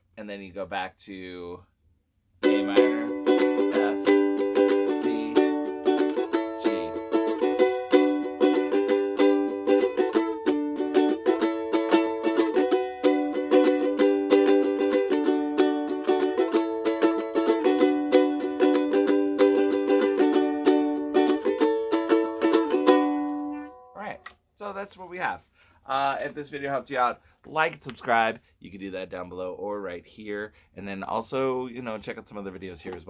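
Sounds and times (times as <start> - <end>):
ukulele strumming chords: 2.4 - 24.0.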